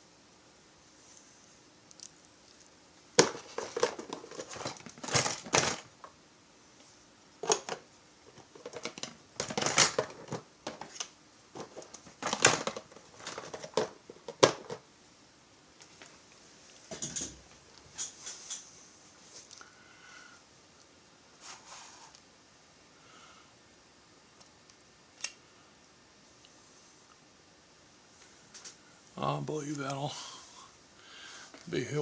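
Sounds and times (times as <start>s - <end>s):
crinkling: 1.0s - 6.1s, 7.4s - 14.8s.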